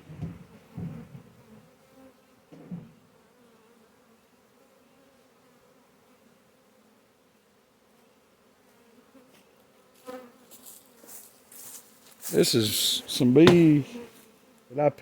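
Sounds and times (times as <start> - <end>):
bee swarm buzzing: 12.4 - 15.0
short knock: 13.4 - 13.8.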